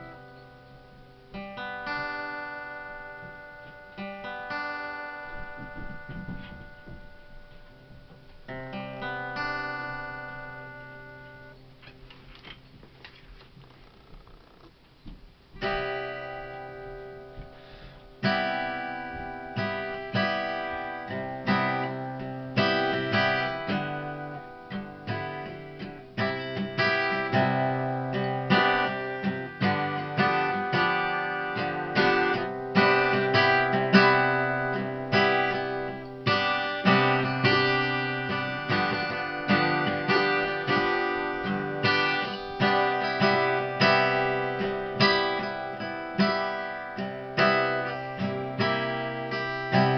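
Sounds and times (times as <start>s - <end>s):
acoustic guitar strumming: 0.0s - 49.9s.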